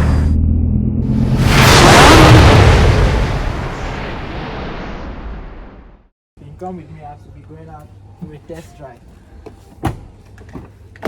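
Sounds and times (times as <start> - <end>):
loud rush of noise: 1.0 - 6.1.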